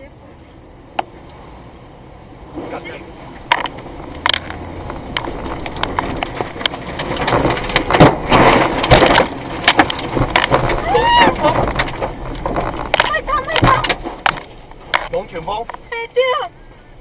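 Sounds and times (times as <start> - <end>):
tornado wind blasting microphone: 1.4 - 15.1
flying debris cracks and bangs: 5.2 - 15.2.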